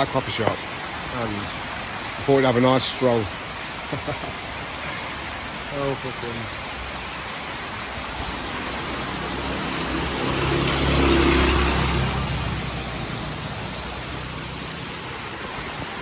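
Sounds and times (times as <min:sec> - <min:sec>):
rain falling: 0:00.0 - 0:16.0
vehicle passing: 0:08.0 - 0:15.6.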